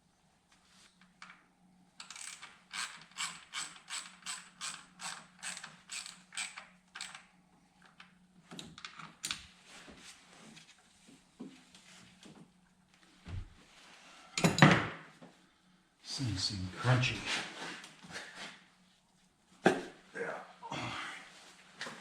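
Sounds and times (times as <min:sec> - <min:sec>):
ratchet wrench clicking: 0:02.0 - 0:07.2.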